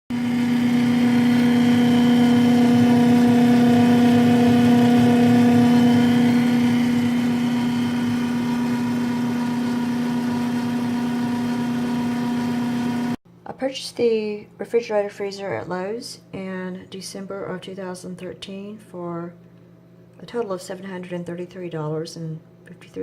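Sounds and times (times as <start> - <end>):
freezer humming drone: 0.1 - 13.2.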